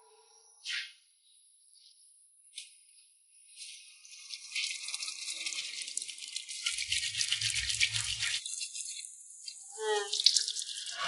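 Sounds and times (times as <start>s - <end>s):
tap water running and splashing: 3.6s - 11.0s.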